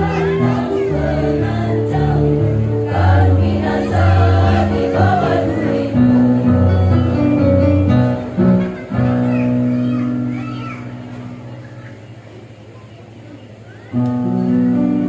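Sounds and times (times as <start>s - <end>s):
women's choir singing: 0.0s - 6.9s
instrumental backing: 0.0s - 12.7s.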